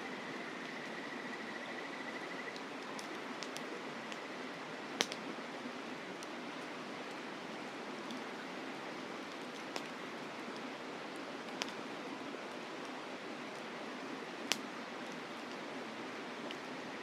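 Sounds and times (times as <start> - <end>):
campfire crackling and popping: 2.5 - 5.3, 5.9 - 7.2, 8.9 - 13.7, 14.3 - 16.7.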